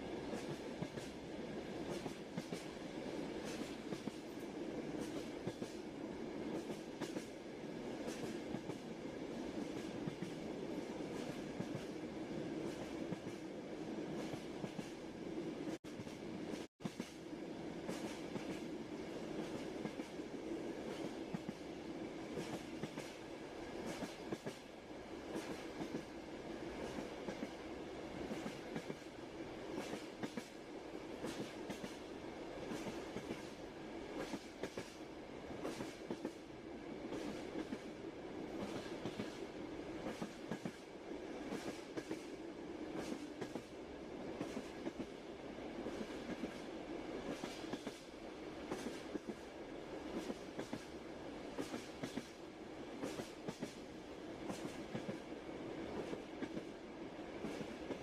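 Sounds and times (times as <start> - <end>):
train rumbling: 0.0 - 58.0
train wheels clacking: 0.3 - 1.2, 1.8 - 2.8, 3.4 - 4.4, 5.0 - 5.8, 6.5 - 7.3, 15.7 - 17.2, 17.8 - 18.7, 23.8 - 24.7, 28.2 - 29.1, 29.7 - 30.6, 31.2 - 32.0, 34.2 - 35.0, 35.6 - 36.4, 38.6 - 39.4, 40.0 - 40.8, 41.4 - 42.3, 42.9 - 43.7, 47.2 - 48.1, 48.7 - 49.4, 50.1 - 50.9, 51.5 - 52.4, 53.0 - 53.8, 54.5 - 55.2.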